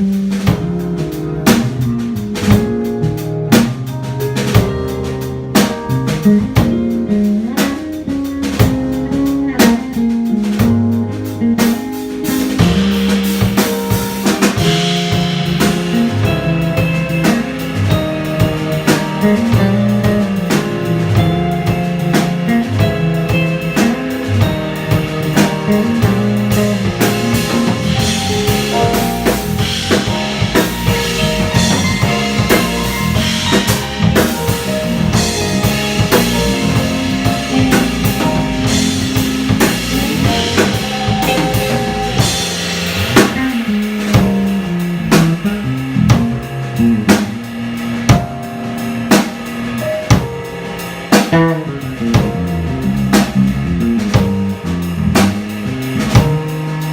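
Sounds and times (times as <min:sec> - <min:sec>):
jazz quartet playing: 0:00.0 - 0:56.9
sharp drum hits: 0:12.3 - 0:47.4.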